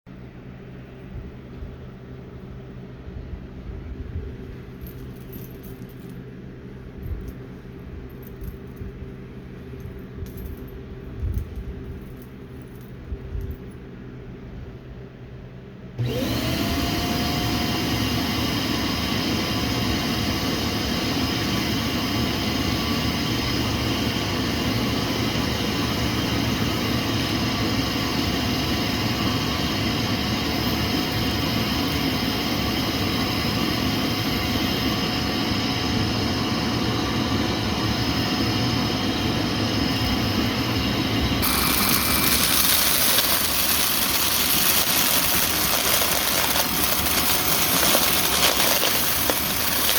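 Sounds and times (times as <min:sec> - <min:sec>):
vacuum cleaner motor whining: 0:16.0 - 0:49.9.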